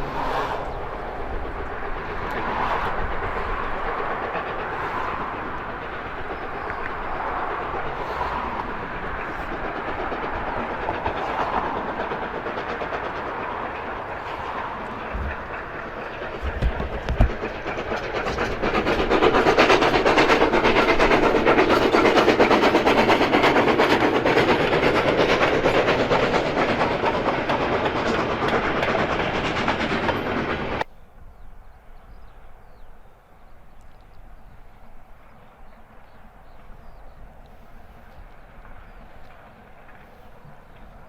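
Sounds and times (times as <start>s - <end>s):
train wheels clattering: 0.0s - 30.9s.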